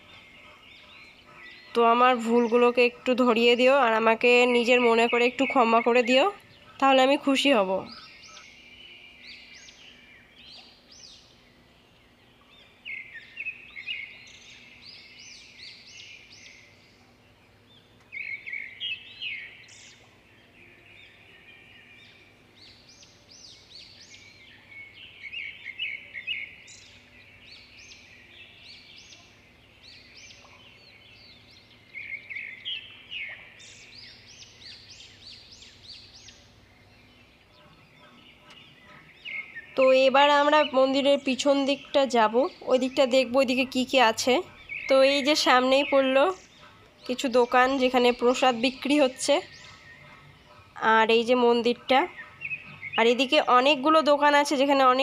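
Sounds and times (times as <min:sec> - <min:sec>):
birds chirping: 0:00.0 - 0:55.0
faint steady hum: 0:00.0 - 0:55.0.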